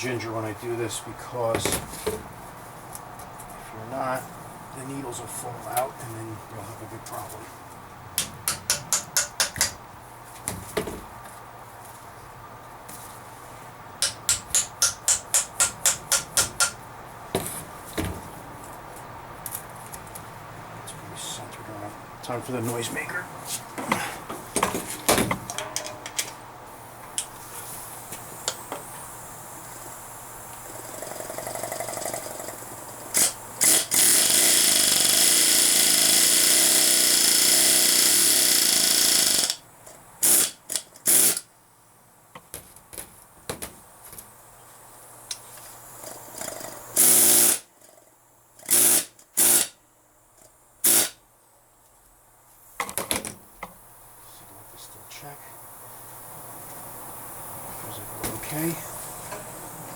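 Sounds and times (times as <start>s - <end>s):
pneumatic hammer hammering: 8.2s - 9.8s, 14.0s - 16.8s, 30.7s - 39.6s, 40.2s - 41.5s, 46.3s - 47.7s, 48.6s - 49.8s, 50.8s - 51.2s.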